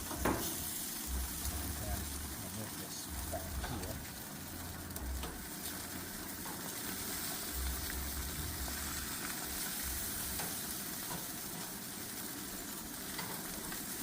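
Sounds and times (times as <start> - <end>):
meat sizzling on a grill: 0.0 - 14.0
low rumble: 1.0 - 2.4, 3.1 - 6.2, 7.5 - 10.4.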